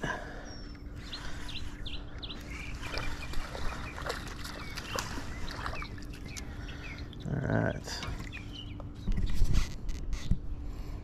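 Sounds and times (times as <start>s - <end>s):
birds chirping: 0.0s - 9.4s
wind rumble on microphone: 8.0s - 10.8s.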